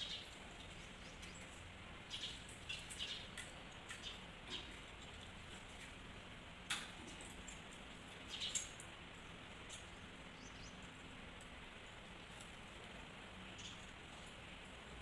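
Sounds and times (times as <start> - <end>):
birds chirping: 0.0 - 5.2, 7.0 - 11.8, 13.3 - 15.0.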